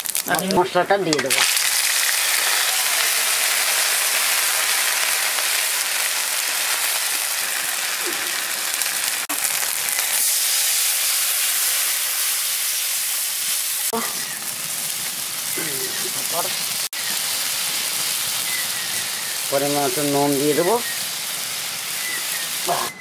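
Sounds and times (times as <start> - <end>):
pastes frying in hot oil: 0.0 - 22.9.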